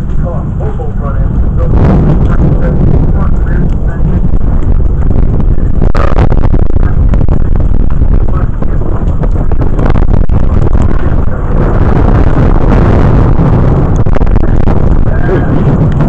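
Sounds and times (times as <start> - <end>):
distorted thunder rumbling: 0.0 - 16.0.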